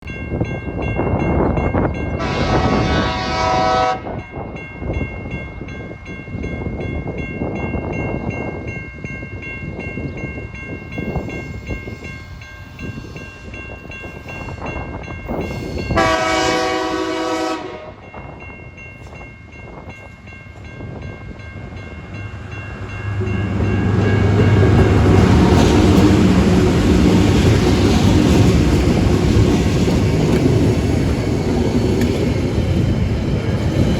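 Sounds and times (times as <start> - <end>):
diesel locomotive horn blasts: 2.2 - 4.2, 15.8 - 18.0.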